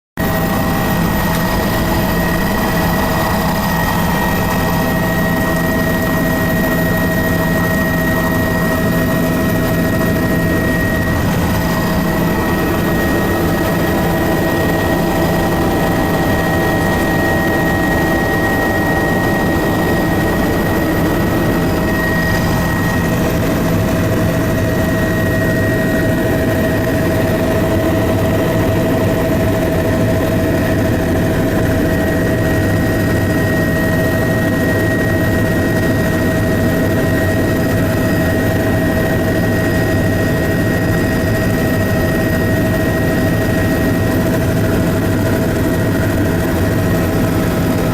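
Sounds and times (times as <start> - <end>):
high whine: 0.2 - 30.0
aircraft engine drone: 0.2 - 47.9.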